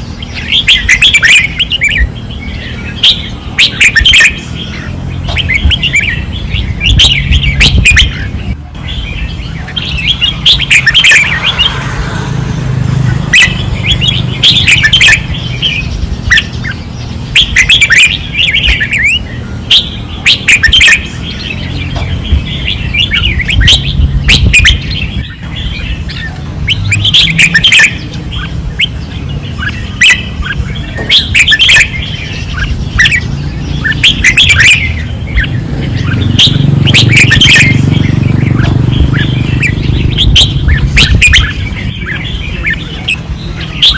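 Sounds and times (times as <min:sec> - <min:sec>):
birds singing: 0:00.0 - 0:43.9.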